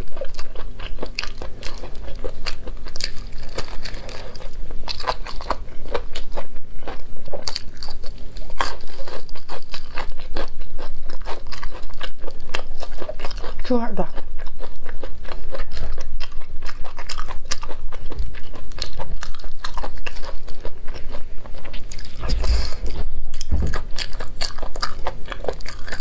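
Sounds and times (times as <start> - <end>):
crunchy chewing: 0.0 - 26.0
dull thumps: 23.4 - 23.9.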